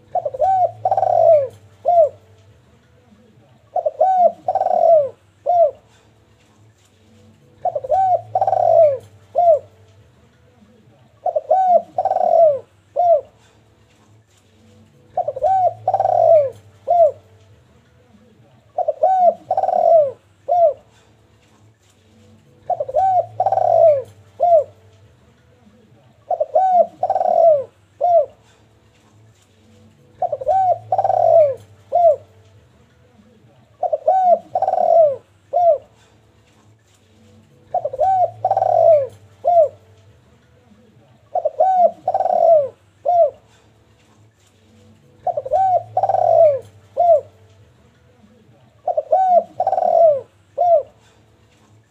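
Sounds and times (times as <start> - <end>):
dove cooing: 0.0 - 2.3, 3.6 - 6.1, 7.4 - 9.8, 10.8 - 13.6, 15.0 - 17.4, 18.6 - 21.1, 22.5 - 24.9, 26.2 - 28.7, 30.0 - 32.4, 33.2 - 36.2, 37.3 - 40.0, 40.7 - 43.8, 45.0 - 47.5, 48.2 - 51.2.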